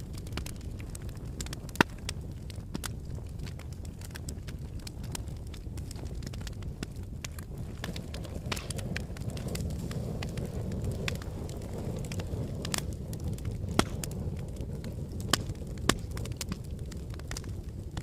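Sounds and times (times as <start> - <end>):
fire popping: 0.0 - 18.0
wood fire crackling: 0.0 - 18.0.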